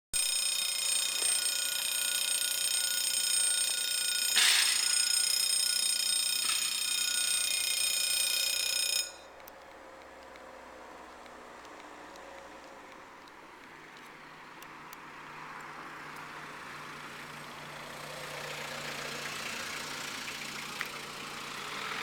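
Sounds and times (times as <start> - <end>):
level crossing warning alarm: 0.2 - 9.4.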